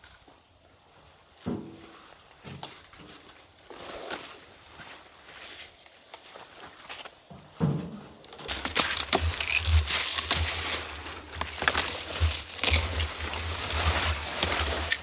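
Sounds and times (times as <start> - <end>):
crunching and crackling: 8.4 - 15.0.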